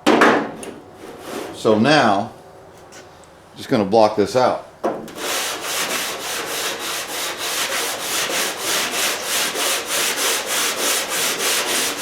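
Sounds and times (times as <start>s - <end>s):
sandpaper block rubbing back and forth: 5.2s - 12.0s.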